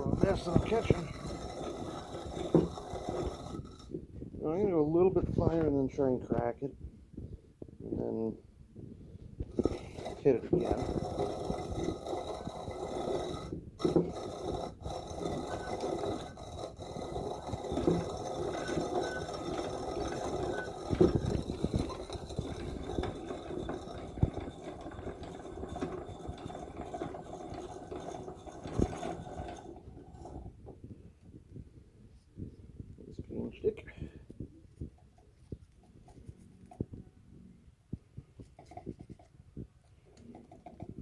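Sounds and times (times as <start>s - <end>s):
coffee grinder grinding beans: 0.0s - 4.0s, 9.5s - 30.6s.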